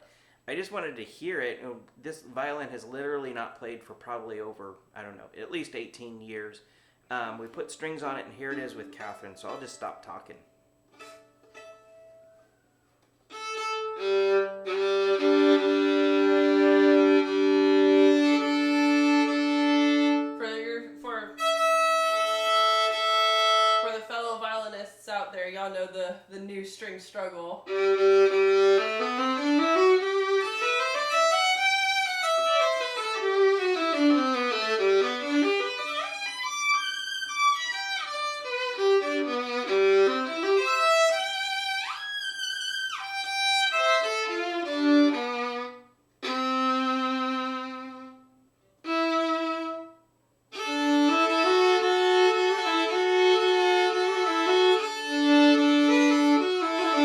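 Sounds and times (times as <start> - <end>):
solo violin: 13.3 - 20.6, 21.3 - 24.0, 27.6 - 57.0.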